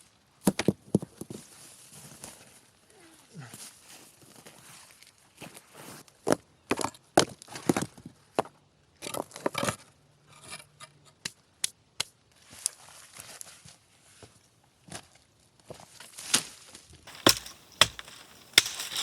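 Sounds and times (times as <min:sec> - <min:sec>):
dry branches snapping: 0:17.1 - 0:19.0.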